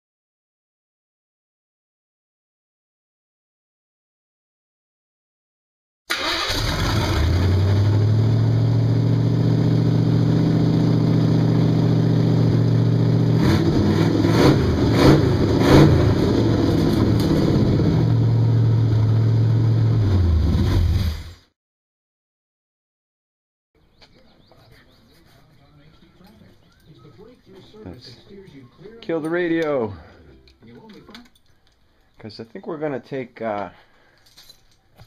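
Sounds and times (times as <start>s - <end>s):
car engine idling: 6.2s - 20.2s.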